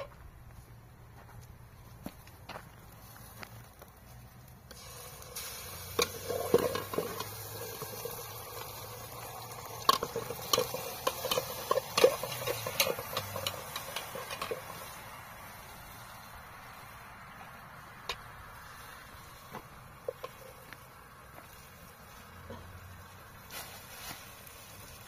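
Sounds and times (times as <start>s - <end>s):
vegetables sizzling in hot oil: 4.7s - 16.8s
metal spoon scraping a pot: 5.4s - 14.9s.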